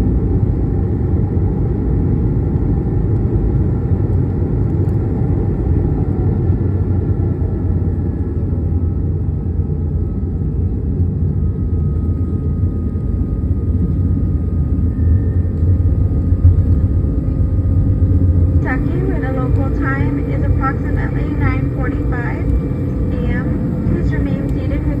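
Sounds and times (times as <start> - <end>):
aircraft cabin engine rumble: 0.0 - 25.0
faint engine whine: 0.0 - 25.0.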